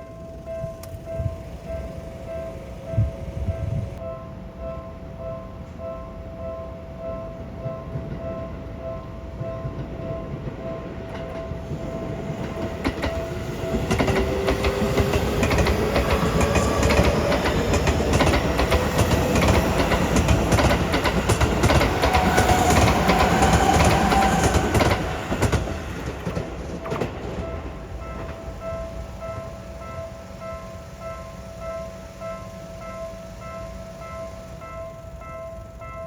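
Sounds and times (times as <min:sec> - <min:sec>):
level crossing warning bell: 0:00.0 - 0:36.0
train wheels clattering over rail joints: 0:09.7 - 0:29.2
traction motors whining: 0:11.6 - 0:35.4.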